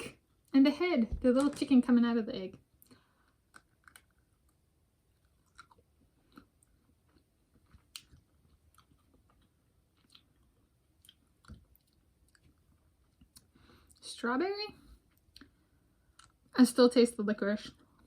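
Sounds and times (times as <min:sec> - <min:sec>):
chewing candy: 0:02.8 - 0:14.0.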